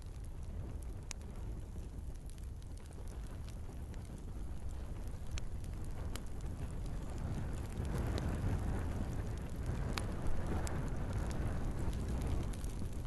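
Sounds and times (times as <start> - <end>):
flames rushing: 0.0 - 13.0
wood crackling and popping: 0.0 - 13.0.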